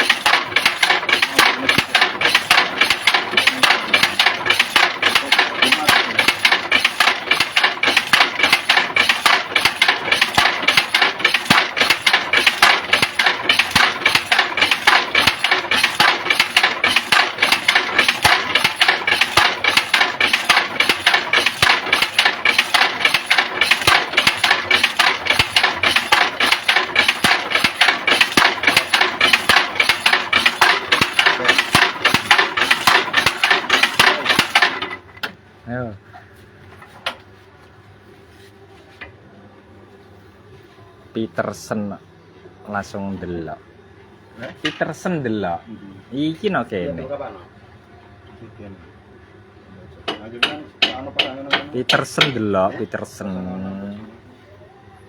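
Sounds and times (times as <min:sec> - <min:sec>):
engine running with fast pulse: 0:00.0 - 0:35.0.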